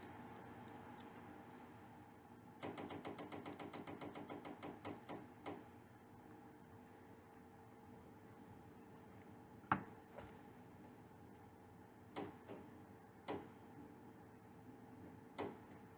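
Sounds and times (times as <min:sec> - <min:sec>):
faint hum: 0:00.0 - 0:02.6.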